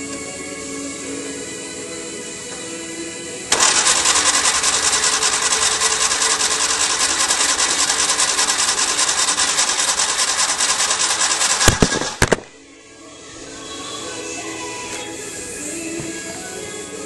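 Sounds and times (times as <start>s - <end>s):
engine cranking on starter motor: 3.5s - 12.5s.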